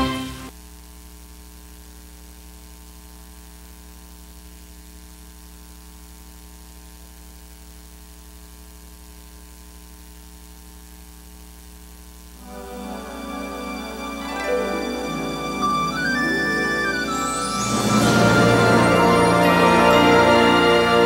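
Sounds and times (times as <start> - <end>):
faint hiss: 7.8 - 21.0.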